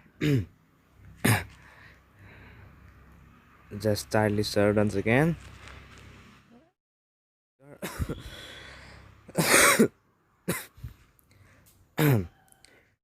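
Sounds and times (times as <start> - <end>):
man coughing: 0.2 - 0.5, 1.2 - 1.6, 7.7 - 8.3, 9.3 - 10.8, 12.0 - 12.4.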